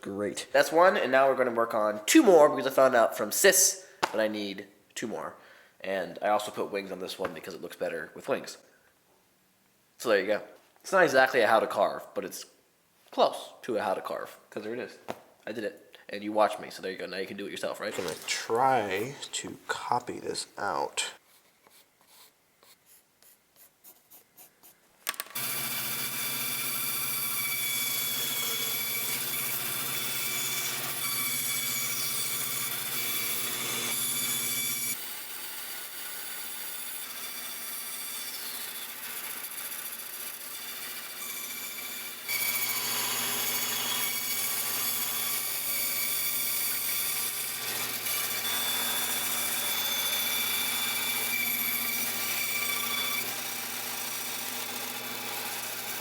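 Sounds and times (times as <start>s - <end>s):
power tool motor running: 25.4s - 36.1s, 40.8s - 56.0s.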